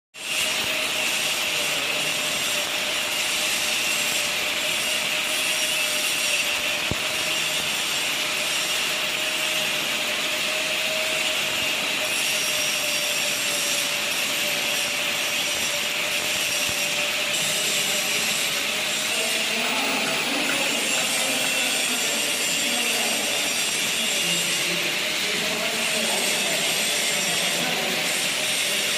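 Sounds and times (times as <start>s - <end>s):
welding arc hissing: 0.2s - 28.9s.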